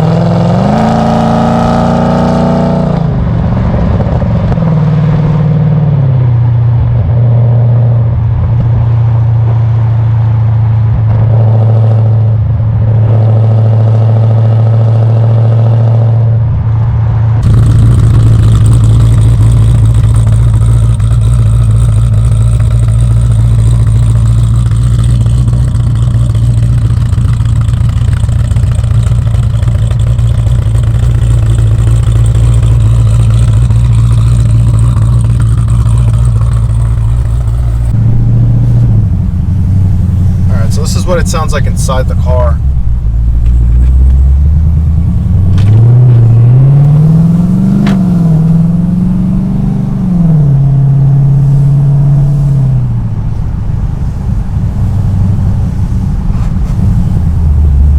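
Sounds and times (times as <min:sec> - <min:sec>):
car engine droning: 0:00.0 - 0:57.9
steady rushing noise: 0:16.6 - 0:48.7, 0:51.4 - 0:57.9.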